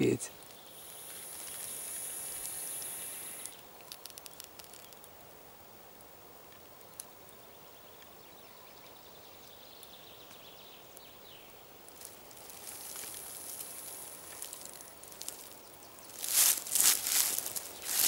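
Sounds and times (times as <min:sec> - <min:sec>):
faint forest ambience: 0:00.0 - 0:18.0
snake hissing: 0:00.7 - 0:03.6.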